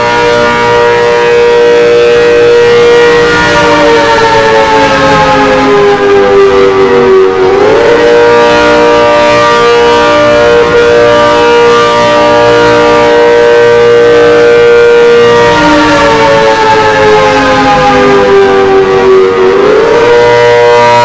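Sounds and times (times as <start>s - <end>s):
warning siren wailing: 0.0s - 21.0s.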